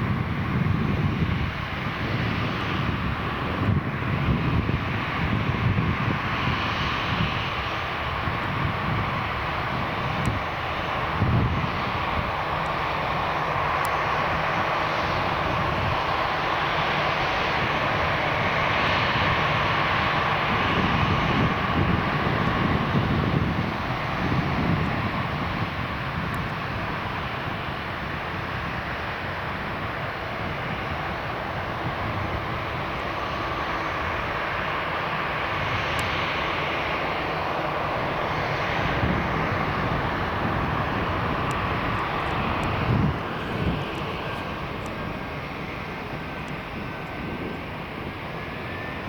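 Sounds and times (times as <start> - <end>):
jet engines running: 0.0 - 49.0.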